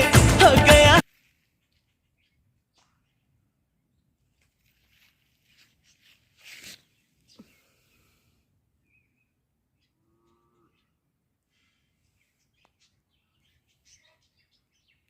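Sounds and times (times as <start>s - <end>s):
faint rustling: 4.3s - 7.7s.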